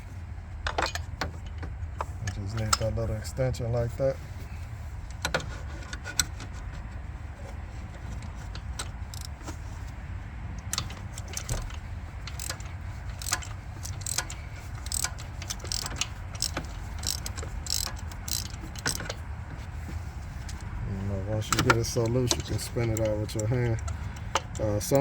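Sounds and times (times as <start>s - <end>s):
ratchet wrench clicking: 8.8s - 9.4s, 10.7s - 19.2s, 21.5s - 25.0s.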